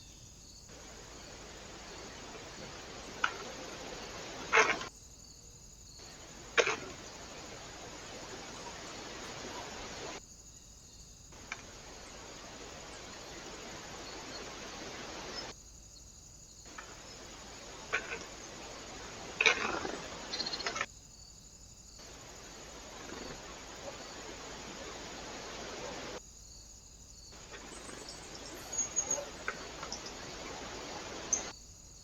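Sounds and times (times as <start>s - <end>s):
outdoor background hiss: 0.0s - 32.0s.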